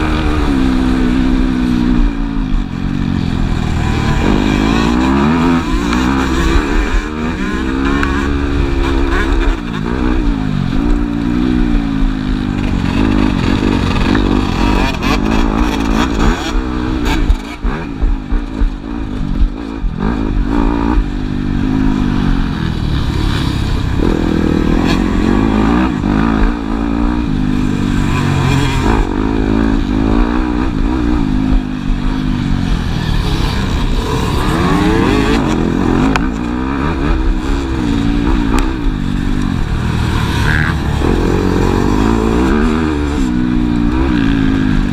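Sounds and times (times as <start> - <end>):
motocross bike engines revving: 0.0 - 44.9.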